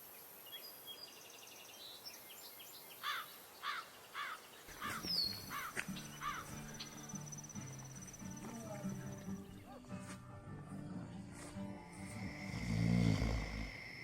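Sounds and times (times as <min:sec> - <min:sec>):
bird trilling and calling: 0:03.0 - 0:08.4
background music: 0:05.0 - 0:14.0.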